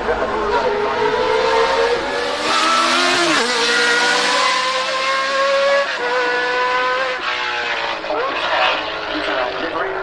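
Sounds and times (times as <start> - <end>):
race car engine accelerating past: 0.2 - 9.7.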